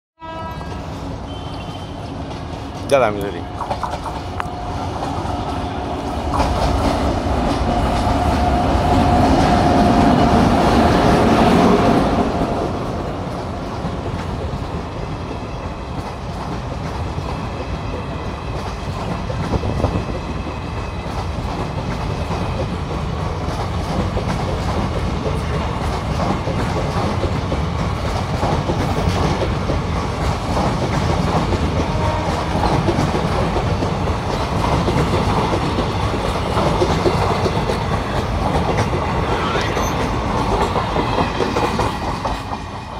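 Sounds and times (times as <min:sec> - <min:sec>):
train rumbling past: 0:00.2 - 0:42.9
wheels clattering on rails: 0:13.2 - 0:42.9.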